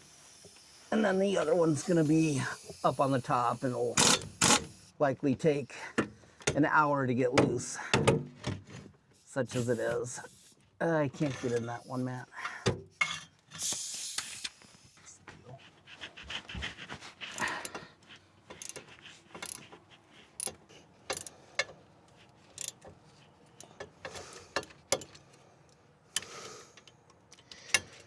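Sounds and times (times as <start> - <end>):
metallic clicks of hand tools: 4.0 - 4.7, 18.5 - 19.7, 20.4 - 21.8, 22.5 - 22.9, 23.6 - 28.0.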